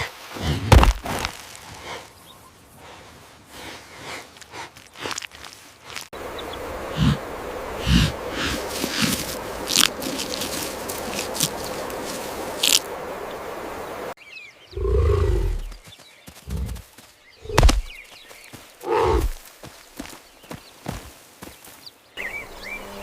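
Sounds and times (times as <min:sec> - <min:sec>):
outdoor noise: 0:00.0 - 0:23.0
large animal growling and roaring: 0:14.8 - 0:15.8.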